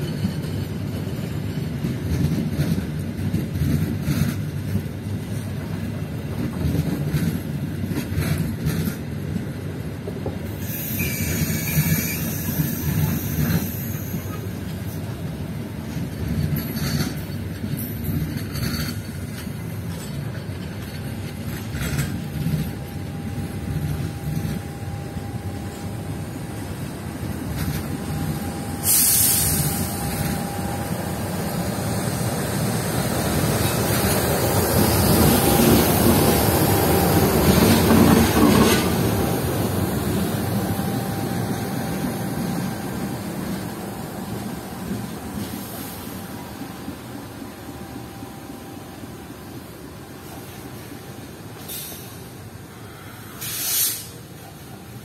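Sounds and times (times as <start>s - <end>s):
train wheels rumbling on rail: 0.0s - 55.0s
burst of hiss: 28.8s - 30.0s, 51.6s - 54.3s.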